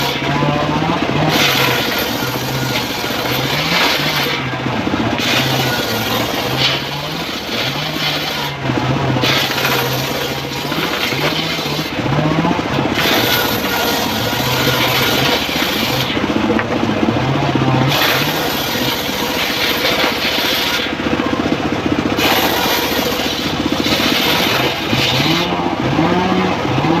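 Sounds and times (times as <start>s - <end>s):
sawmill engine running under load: 0.0s - 27.0s
saw blade hissing in wood: 1.3s - 4.4s, 5.2s - 8.6s, 17.9s - 21.0s, 22.2s - 25.5s.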